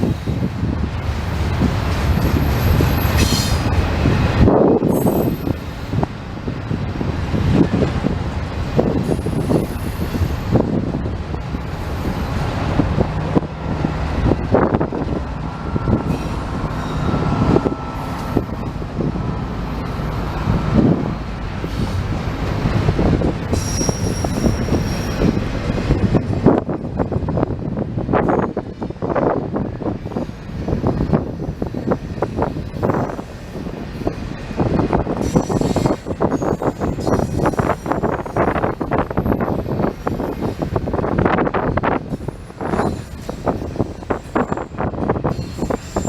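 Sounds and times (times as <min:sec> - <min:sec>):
freight cars rumbling on rails: 0:00.0 - 0:46.0
high-pitched wheel squeals: 0:15.8 - 0:18.7, 0:23.5 - 0:25.4, 0:35.2 - 0:40.6, 0:42.6 - 0:46.0.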